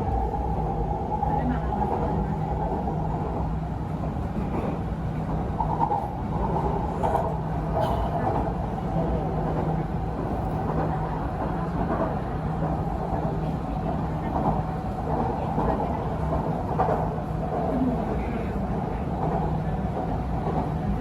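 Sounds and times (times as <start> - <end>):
electric train rumbling: 0.0 - 21.0.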